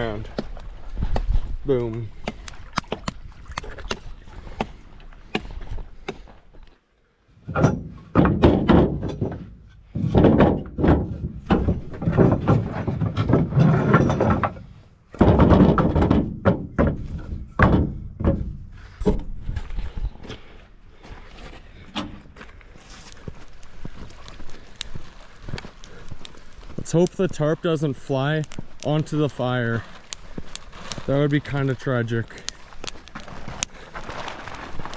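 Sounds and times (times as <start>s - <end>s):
wind rumbling on microphone: 0.0s - 4.6s, 19.0s - 20.3s
sharp crackles: 22.4s - 34.9s
tarp flapping in wind: 29.7s - 34.9s.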